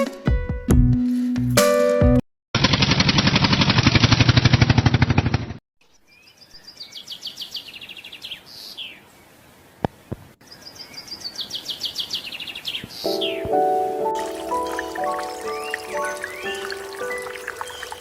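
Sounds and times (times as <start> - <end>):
loud fast rattle: 2.6 - 5.6
small bird singing trills: 5.9 - 9.0, 14.5 - 18.0.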